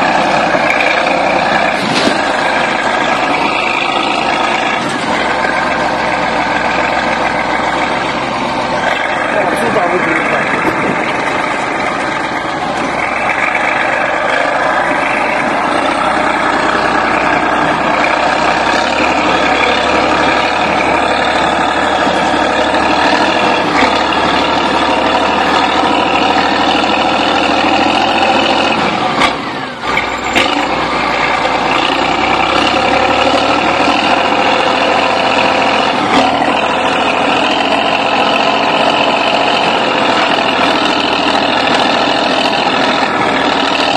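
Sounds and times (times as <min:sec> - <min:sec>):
bulldozer diesel engine straining: 0:00.0 - 0:43.9.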